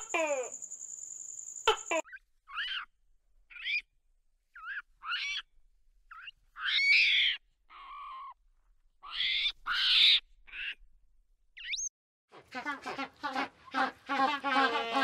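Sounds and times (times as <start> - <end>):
monkeys giving high-pitched calls: 1.6 - 2.9.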